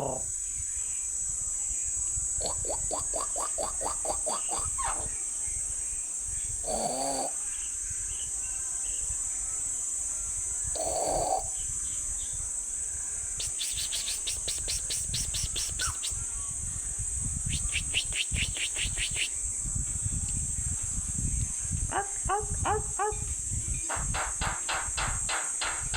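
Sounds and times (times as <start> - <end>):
wind rumble on microphone: 0.0 - 9.6, 10.2 - 25.9
high-pitched insect drone: 0.0 - 25.9
rapid chirps: 2.4 - 5.1, 13.4 - 16.2, 17.4 - 19.4.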